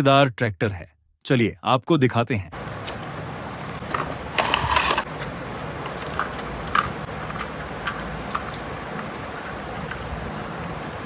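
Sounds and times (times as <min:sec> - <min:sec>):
packaging rustle: 0:02.6 - 0:10.5.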